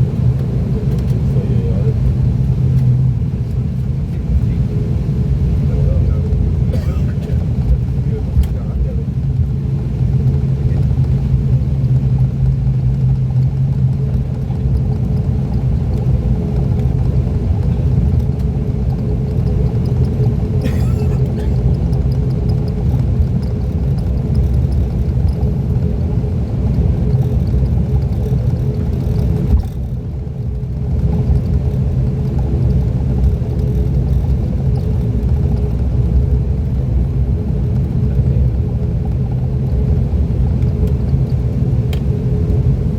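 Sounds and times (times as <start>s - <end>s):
turboprop engine drone in cabin: 0.0s - 42.9s.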